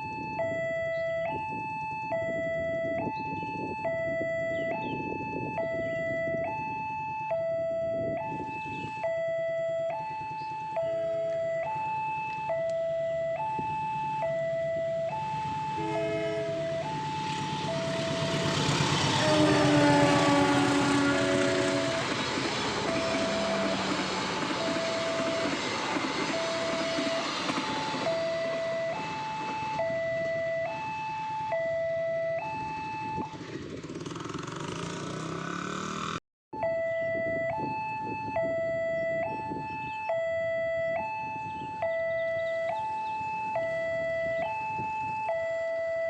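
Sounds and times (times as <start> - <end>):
two-tone crossing alarm: 0.0 - 33.8, 36.6 - 46.0
passing traffic rumble: 0.1 - 36.2
train passing: 14.7 - 31.4
train horn: 15.8 - 27.5.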